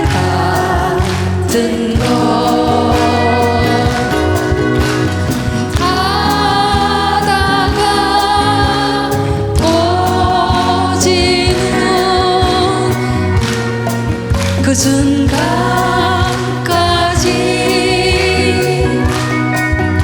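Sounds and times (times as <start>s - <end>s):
musical accompaniment: 0.0s - 20.0s
person singing with vibrato: 0.0s - 20.0s.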